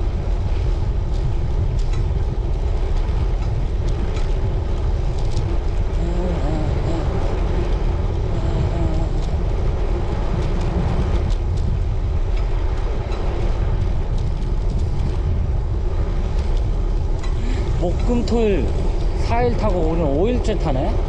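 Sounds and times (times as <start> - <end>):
wind rushing over microphone: 0.0 - 21.0
faint ticks: 1.1 - 15.4.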